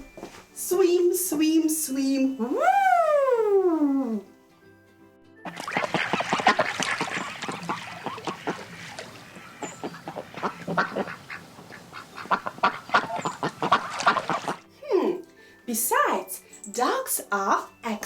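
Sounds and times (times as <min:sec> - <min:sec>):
ducks quacking: 0:05.5 - 0:14.6.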